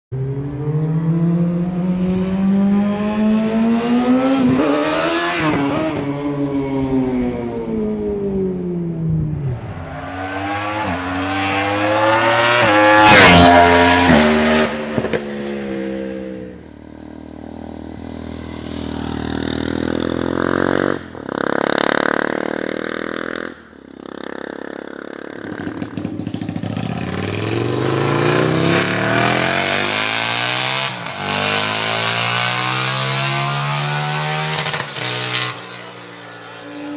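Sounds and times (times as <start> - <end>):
motorcycle engines revving: 0.2 - 36.9.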